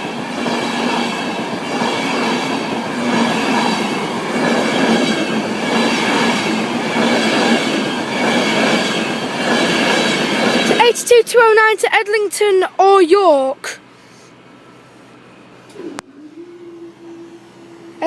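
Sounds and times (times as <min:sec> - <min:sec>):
train wheels rushing on rails: 0:00.0 - 0:11.7.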